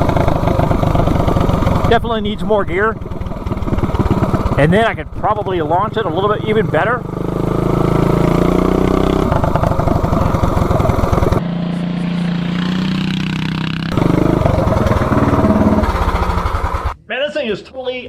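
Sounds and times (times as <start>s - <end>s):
minibike engine at high revs: 0.0s - 17.0s.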